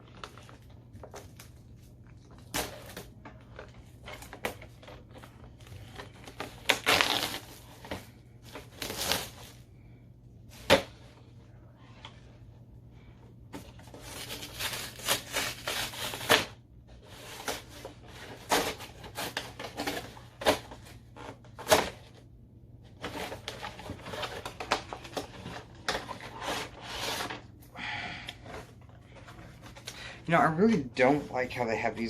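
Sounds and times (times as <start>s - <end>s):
packaging rustling and crinkling: 0.0s - 9.6s.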